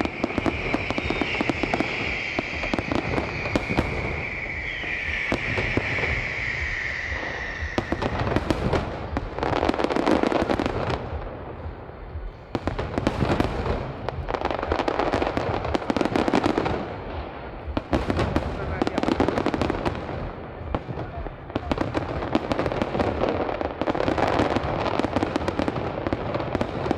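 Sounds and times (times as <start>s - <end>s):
high firework whistle: 0.0s - 10.4s
fireworks bangs and crackling: 0.0s - 26.9s.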